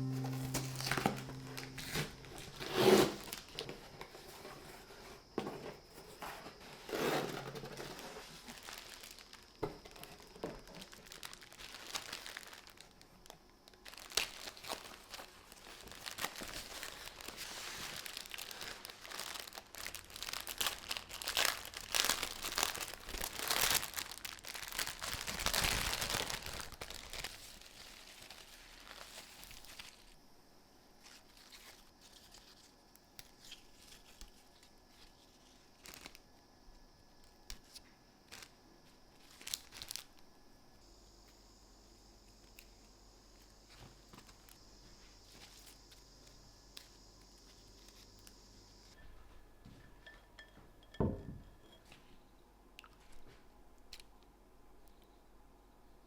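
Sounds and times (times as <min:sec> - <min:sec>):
rustling and crinkling: 0:00.0 - 0:30.2, 0:31.0 - 0:36.4, 0:37.2 - 0:40.3, 0:43.4 - 0:48.4.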